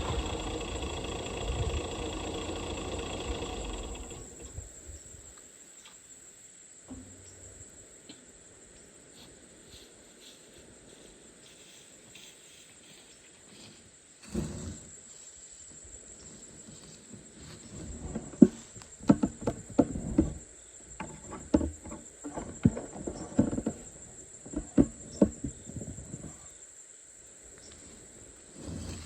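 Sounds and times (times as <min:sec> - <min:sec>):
crickets trilling: 0:00.0 - 0:29.0
knocks and rustles: 0:16.6 - 0:26.4.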